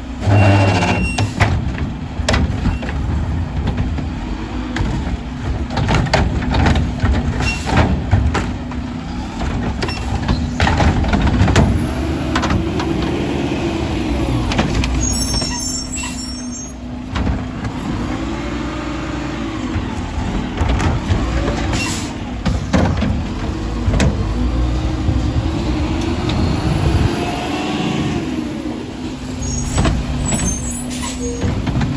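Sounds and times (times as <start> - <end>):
truck engine revving: 0.0 - 31.9
clanks and bangs: 0.2 - 13.2, 19.6 - 27.1, 29.6 - 31.9.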